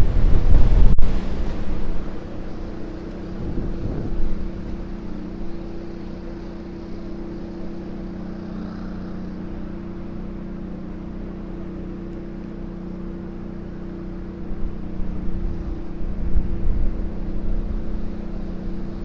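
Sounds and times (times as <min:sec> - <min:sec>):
wind buffeting microphone: 0:00.0 - 0:06.2, 0:14.4 - 0:19.0
rushing background noise: 0:00.0 - 0:12.0
engine drone: 0:00.0 - 0:19.0.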